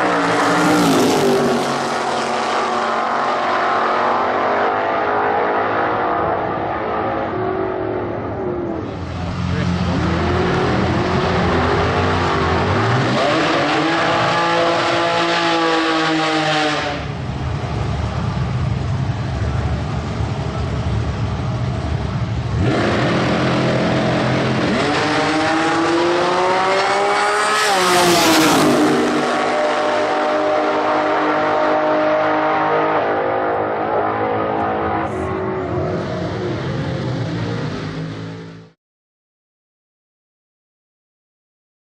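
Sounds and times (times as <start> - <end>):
race car engine revving: 0.0 - 38.8
low engine rumbling: 8.0 - 12.8, 17.1 - 24.6.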